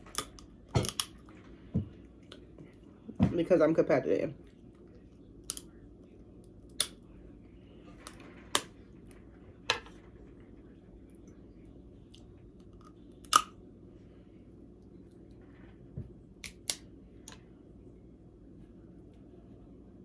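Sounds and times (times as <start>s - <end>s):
crab shells cracking: 0.0s - 1.2s, 5.4s - 5.7s, 12.6s - 13.5s.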